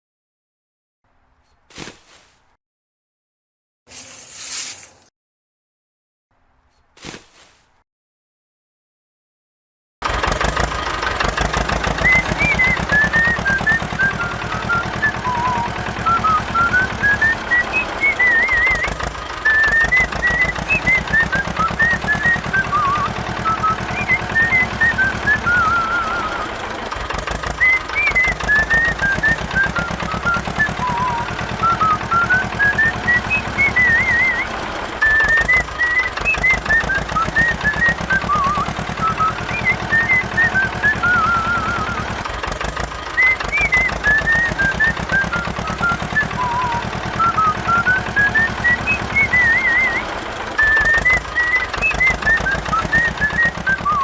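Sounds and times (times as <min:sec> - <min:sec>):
small diesel engine knocking: 0:10.0 - 0:54.0
high whistle-like tune: 0:12.0 - 0:26.5, 0:27.6 - 0:42.2, 0:43.2 - 0:54.0.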